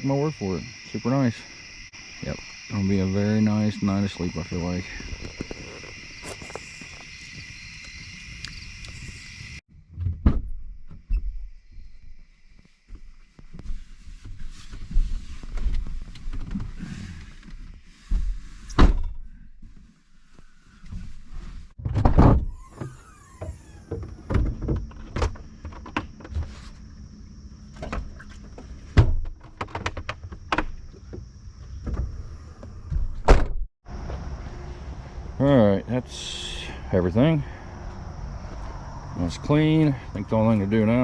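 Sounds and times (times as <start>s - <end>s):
camping gear knocking and clattering: 12.9s - 17.7s, 27.6s - 32.2s.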